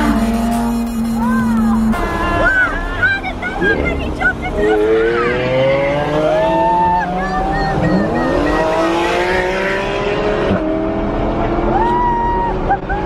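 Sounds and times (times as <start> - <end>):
sports car engines accelerating: 0.0 - 2.3, 2.9 - 13.0.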